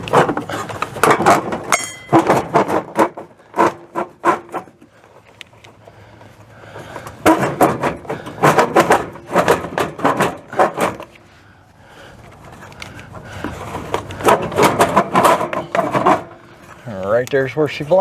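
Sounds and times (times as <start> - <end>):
metal case knocking and scraping: 0.0 - 4.8, 7.0 - 11.2, 13.4 - 16.8.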